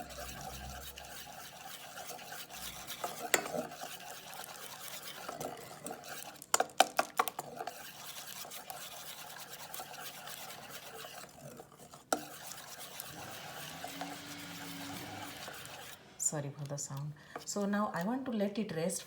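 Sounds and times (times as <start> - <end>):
low steady hum: 0.0 - 1.4
batter being stirred in a bowl: 0.0 - 19.0.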